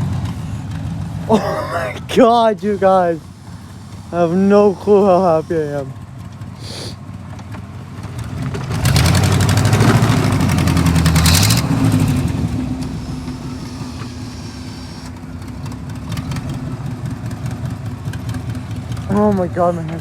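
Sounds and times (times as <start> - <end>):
vehicle engine revving and idling: 0.0 - 20.0.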